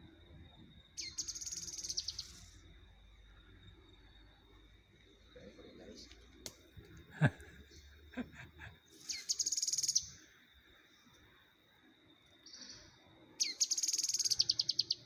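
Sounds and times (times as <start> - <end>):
bird chirp: 0.0 - 2.7, 3.3 - 11.2, 12.4 - 15.0
bird trilling: 1.0 - 2.4, 9.1 - 10.1, 13.4 - 15.0.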